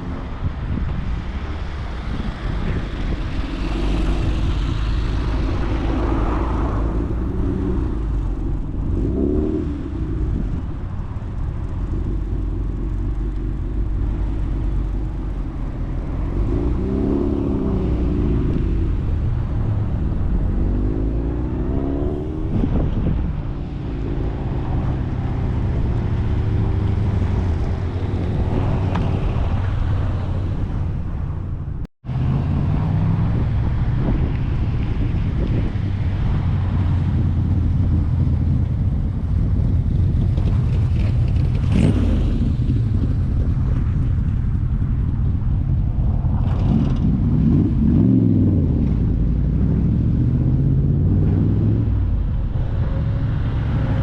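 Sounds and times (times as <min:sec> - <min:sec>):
cars driving past: 0:00.0 - 0:54.0
steady low rumble: 0:00.0 - 0:54.0.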